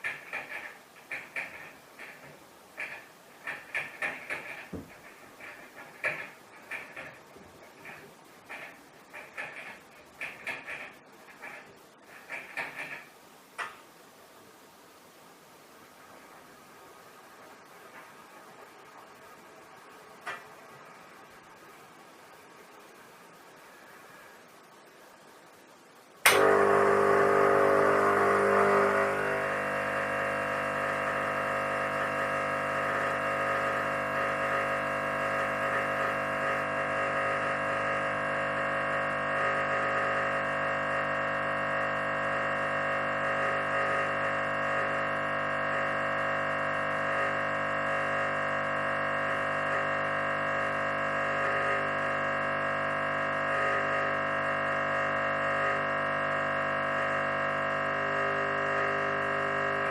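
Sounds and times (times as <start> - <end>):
espresso machine pump humming: 26.3 - 59.9.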